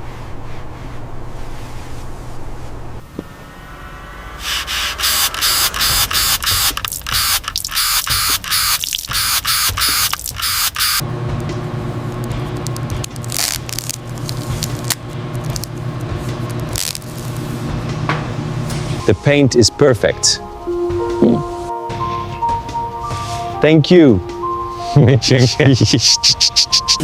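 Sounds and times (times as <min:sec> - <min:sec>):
low motor hum: 0:00.0 - 0:19.1
spray gun hissing: 0:04.4 - 0:11.0.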